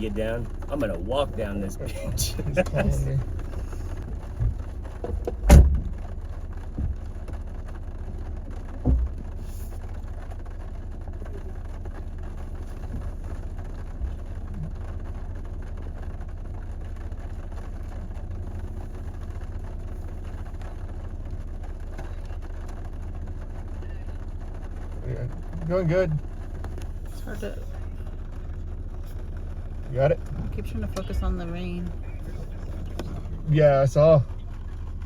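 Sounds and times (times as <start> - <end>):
engine rumbling: 0.0 - 35.0
thumps: 2.1 - 9.4.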